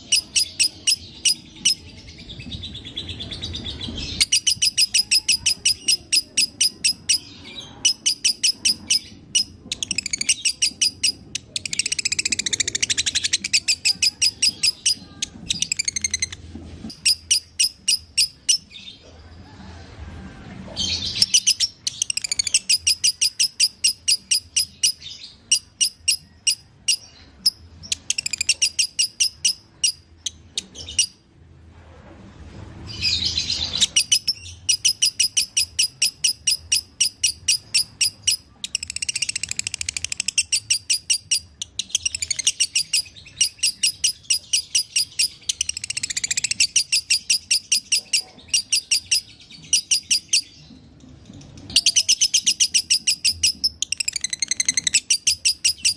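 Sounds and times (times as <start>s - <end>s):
lovebird chattering song: 0.0s - 19.0s, 20.9s - 31.2s, 33.1s - 55.9s.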